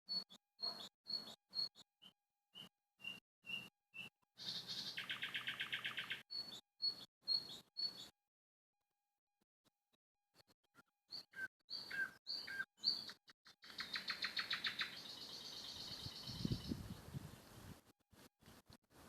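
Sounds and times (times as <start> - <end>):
songbird chirping and trilling: 0.1 - 8.1, 11.1 - 17.6.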